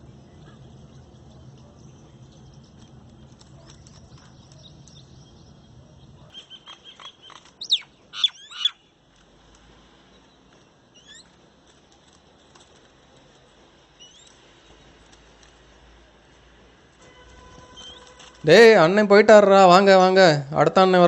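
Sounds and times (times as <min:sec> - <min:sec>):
bird chirps: 0:00.0 - 0:09.0, 0:10.1 - 0:11.4, 0:14.0 - 0:15.1, 0:17.4 - 0:18.2
loud sweeping bird calls: 0:03.8 - 0:09.0, 0:10.1 - 0:11.4, 0:17.4 - 0:18.6.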